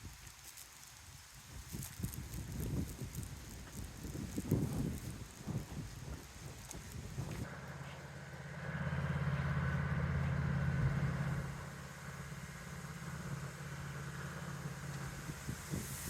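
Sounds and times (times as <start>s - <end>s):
vehicle engine passing: 7.2s - 16.0s.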